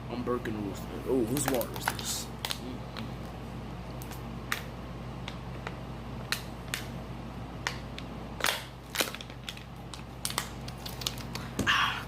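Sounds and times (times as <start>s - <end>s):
steady low hum: 0.0s - 12.0s
sharp clicks and crackles: 7.6s - 11.5s.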